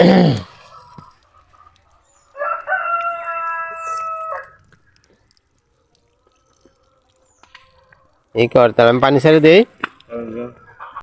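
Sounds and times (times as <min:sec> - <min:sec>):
rooster crowing: 0:02.3 - 0:04.7.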